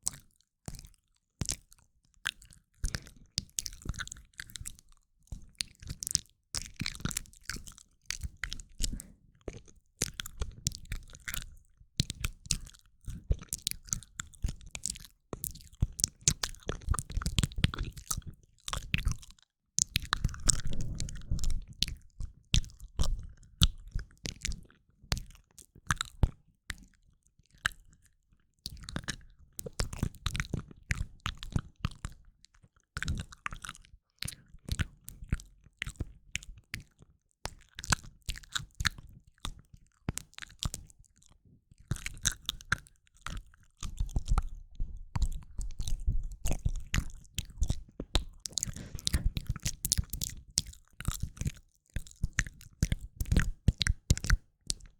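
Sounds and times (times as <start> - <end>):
wet mouth clicks and smacks: 13.4 - 24.6, 33.0 - 54.9.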